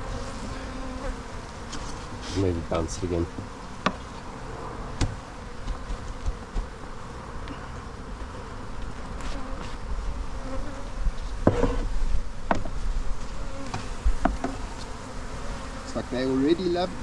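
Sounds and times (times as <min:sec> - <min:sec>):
bees buzzing: 0:00.0 - 0:17.0
knocks of wooden hive equipment: 0:05.0 - 0:06.8, 0:12.5 - 0:12.8.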